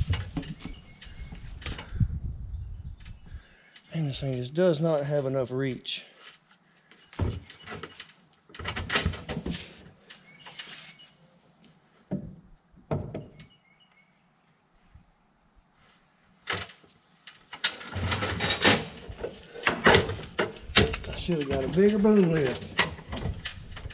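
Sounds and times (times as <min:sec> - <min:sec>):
knocks and clunks: 0:00.0 - 0:02.0, 0:12.1 - 0:13.5, 0:17.6 - 0:23.9.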